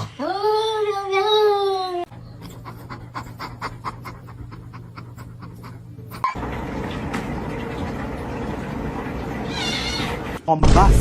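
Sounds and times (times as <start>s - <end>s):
animal panting: 2.1s - 6.4s.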